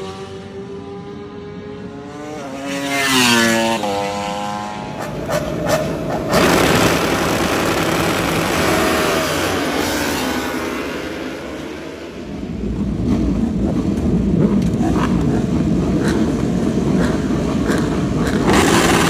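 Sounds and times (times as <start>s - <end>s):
motorcycle passing close: 0.0s - 19.0s
motorcycle engine revs falling: 2.6s - 12.2s, 13.0s - 19.0s.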